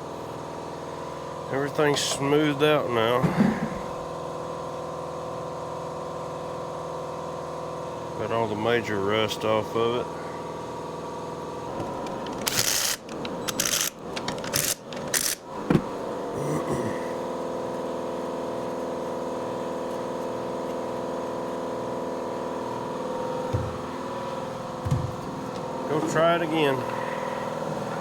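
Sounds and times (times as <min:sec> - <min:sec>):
motor hum: 0:10.1 - 0:28.0
metal parts scraping and clanking: 0:11.8 - 0:15.4.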